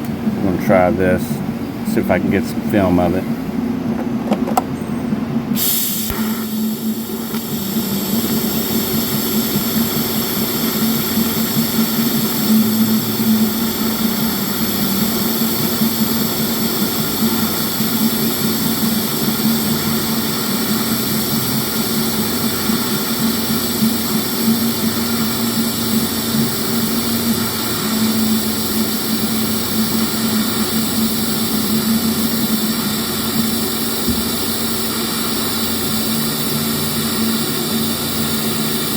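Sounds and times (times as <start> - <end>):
welding arc buzzing: 5.6 - 38.9.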